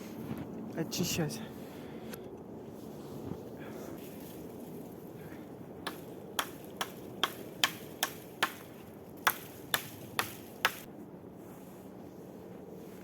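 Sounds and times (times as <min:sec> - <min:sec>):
axe chopping wood: 0:05.8 - 0:10.9.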